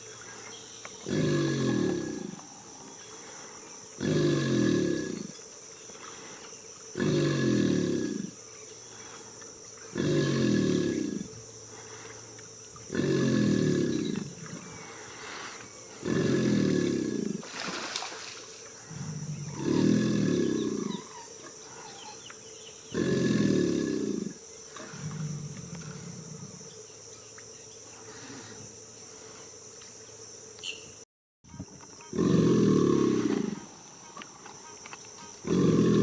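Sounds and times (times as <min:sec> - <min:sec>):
alligator bellowing: 0:01.0 - 0:02.8, 0:04.0 - 0:05.4, 0:07.0 - 0:08.4, 0:09.9 - 0:11.4, 0:12.8 - 0:17.7, 0:18.8 - 0:22.2, 0:22.9 - 0:26.6, 0:32.1 - 0:33.8, 0:35.4 - 0:36.0.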